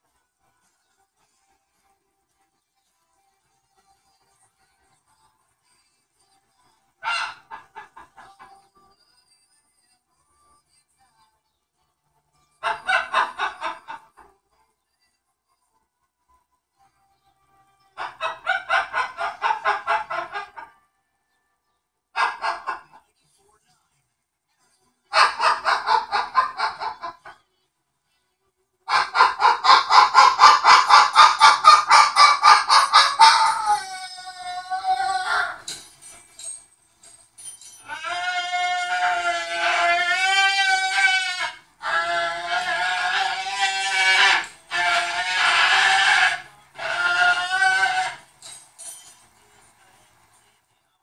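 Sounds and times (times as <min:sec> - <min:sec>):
cockatoo screaming: 0:07.0 - 0:08.3, 0:12.6 - 0:14.0, 0:18.0 - 0:20.7, 0:25.1 - 0:27.4, 0:28.9 - 0:35.8, 0:37.8 - 0:48.4.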